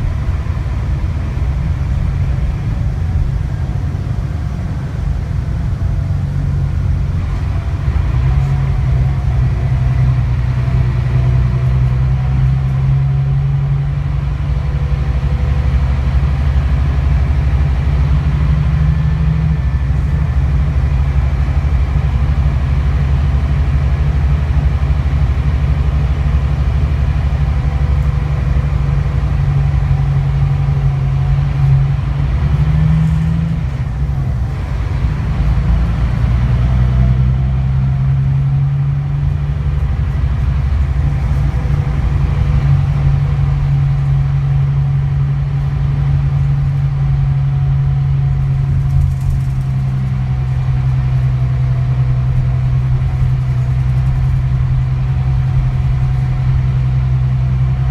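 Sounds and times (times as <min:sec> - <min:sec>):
bus diesel engine droning: 0:00.0 - 0:57.9.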